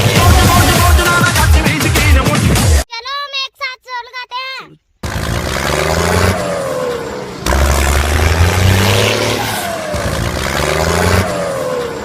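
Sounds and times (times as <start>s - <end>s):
tractor engine revving: 0.0s - 2.0s, 5.0s - 12.0s.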